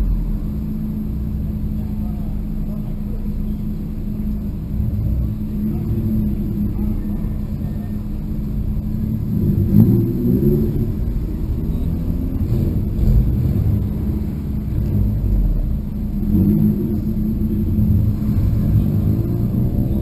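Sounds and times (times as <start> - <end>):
car engine low rumble: 0.0 - 20.0.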